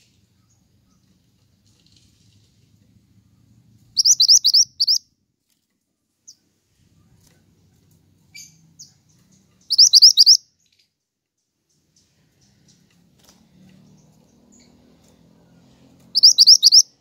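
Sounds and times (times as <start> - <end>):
bird whistled song: 3.9 - 5.0, 9.6 - 10.5, 16.1 - 17.0
faint bird chips: 4.0 - 5.0, 8.3 - 11.0, 16.1 - 16.9.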